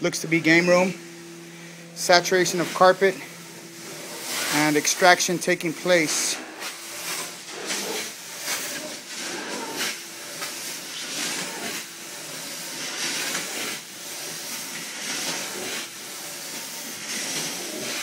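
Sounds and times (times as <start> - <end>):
extraction wand sucking water: 0.0 - 13.7.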